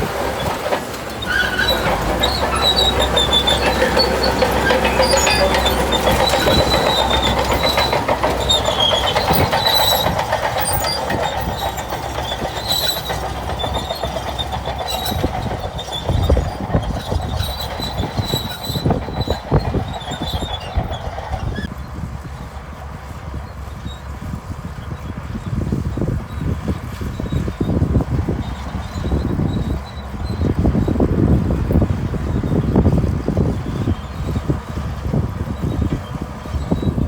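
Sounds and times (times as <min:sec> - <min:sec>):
bulldozer diesel engine droning: 0:00.0 - 0:37.0
steel tracks squealing and clanking: 0:00.0 - 0:37.0
metal knocks: 0:00.4 - 0:21.6.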